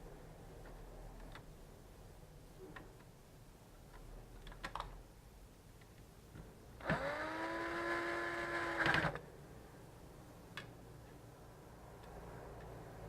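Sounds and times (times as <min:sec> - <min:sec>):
electric screwdriver motor whining: 0:06.8 - 0:09.2.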